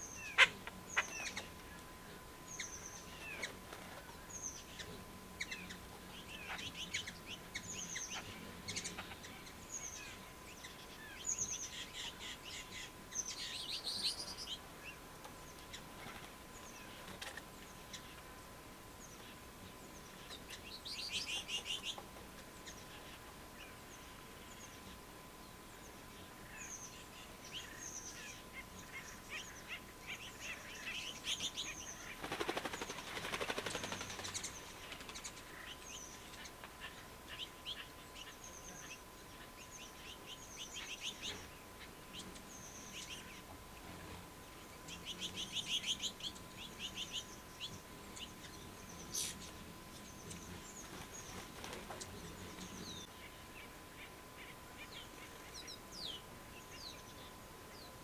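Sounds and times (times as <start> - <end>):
bird chattering: 0.0 - 1.6
birds chirping: 0.0 - 58.0
wings fluttering: 3.0 - 5.0, 15.5 - 18.2, 31.3 - 37.0, 47.6 - 53.1.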